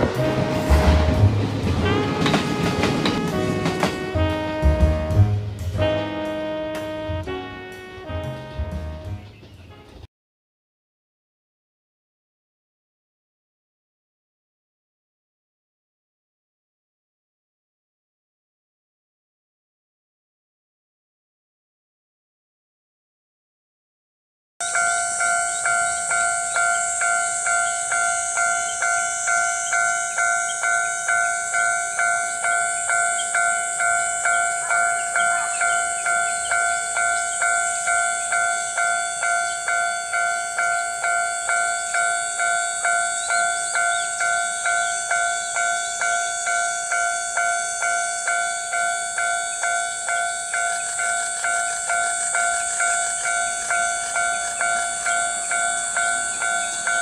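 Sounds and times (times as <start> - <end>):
level crossing warning bell: 0.0 - 4.6, 24.6 - 57.0.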